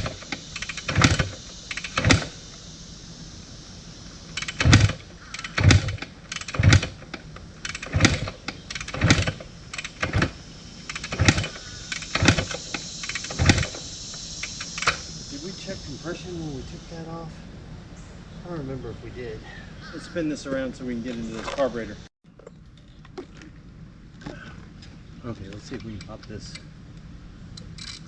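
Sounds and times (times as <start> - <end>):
motorcycle engine kick-start thumps: 0.0 - 2.4, 4.3 - 15.2.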